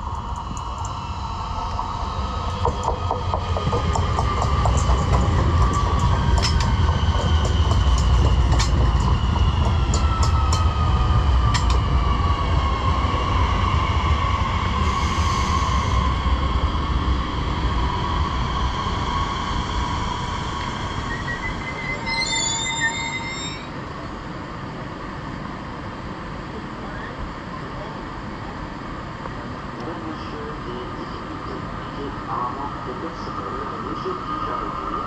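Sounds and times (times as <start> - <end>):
high whine falling in pitch: 0.0 - 23.8
train rumble: 0.0 - 35.0
wheels clicking over rail joints: 2.6 - 10.8.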